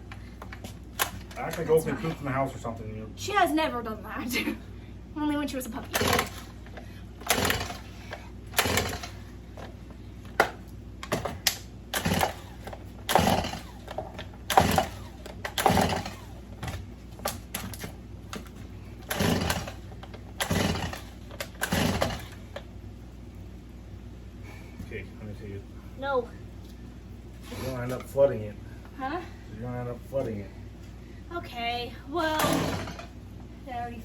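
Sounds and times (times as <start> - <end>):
chainsaw starter cord pulls: 0.4 - 1.8, 5.9 - 9.7, 10.3 - 22.7, 32.4 - 33.1.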